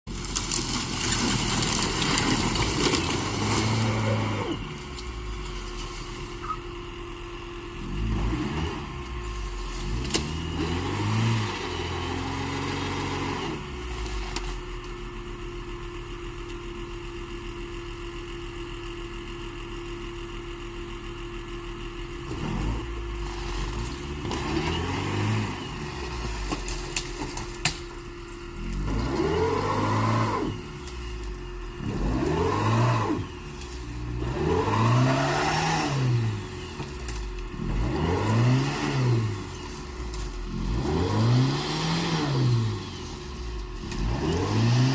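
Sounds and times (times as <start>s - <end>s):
car engine revving: 0.1s - 6.6s, 7.7s - 13.8s, 22.2s - 44.9s.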